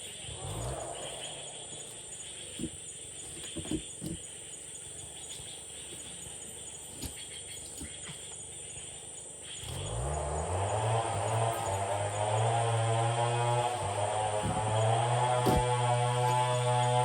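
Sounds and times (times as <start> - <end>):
short knocks: 10.6 - 17.0.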